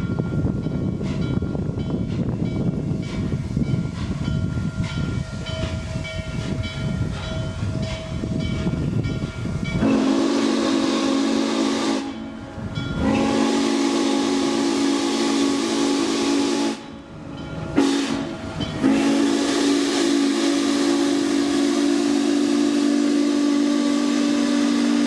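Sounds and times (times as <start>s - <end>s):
steam train rumbling: 0.0s - 25.0s
steam locomotive whistle: 9.7s - 25.0s.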